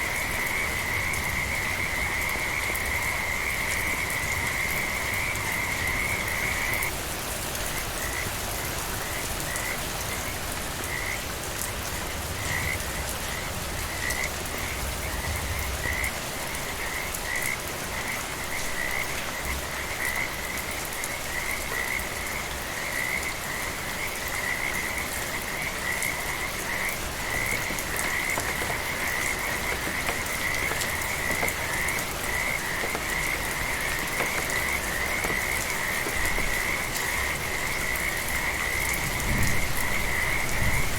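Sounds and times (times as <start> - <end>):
frogs croaking: 0.0 - 7.0, 7.7 - 40.9
gentle rain: 0.0 - 40.9.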